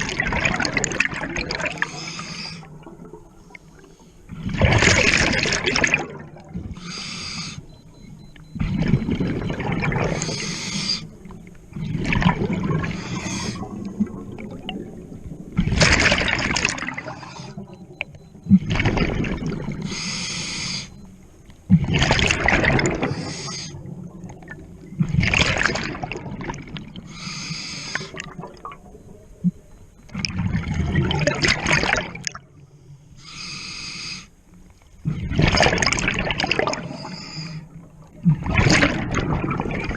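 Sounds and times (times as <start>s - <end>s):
exhaust bubbles bubbling underwater: 0.0s - 20.2s, 21.0s - 27.2s, 27.9s - 32.8s, 35.0s - 39.9s
scuba regulator hissing inhale: 1.9s - 2.7s, 6.8s - 7.6s, 10.2s - 11.1s, 13.0s - 13.7s, 19.9s - 21.0s, 23.1s - 23.8s, 27.1s - 28.2s, 33.2s - 34.4s, 36.9s - 37.7s.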